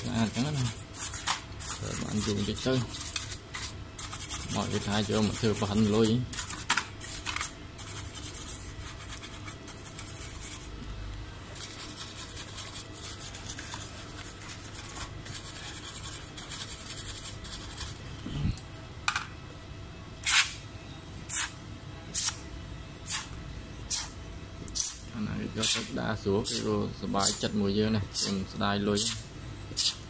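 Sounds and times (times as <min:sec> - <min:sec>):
scratching on circuit board: 0:00.0 - 0:10.7, 0:11.5 - 0:18.0, 0:21.3 - 0:21.6.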